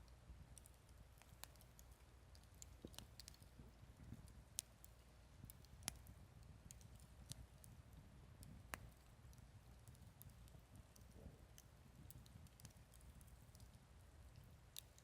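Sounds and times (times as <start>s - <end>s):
low fire rumble: 0.3s - 15.0s
campfire pops and snaps: 0.6s - 3.5s, 4.1s - 7.8s, 9.8s - 15.0s.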